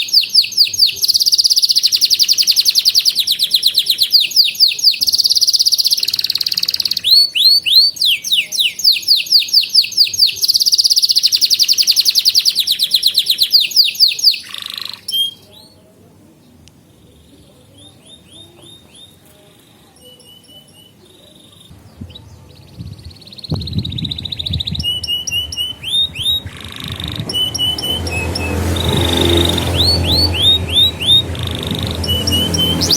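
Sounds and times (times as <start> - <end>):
canary trilling and chirping: 0.0 - 15.8, 19.9 - 32.9
low rumbling noise: 21.7 - 32.9.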